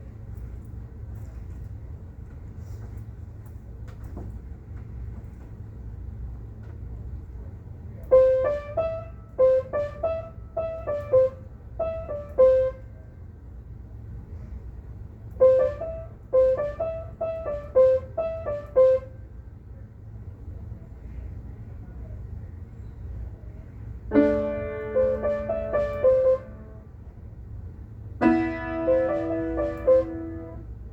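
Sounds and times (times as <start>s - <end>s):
steady low hum: 0.0s - 30.9s
piano-like keyboard melody: 8.1s - 12.8s, 15.4s - 19.2s, 24.1s - 26.9s, 28.2s - 30.9s.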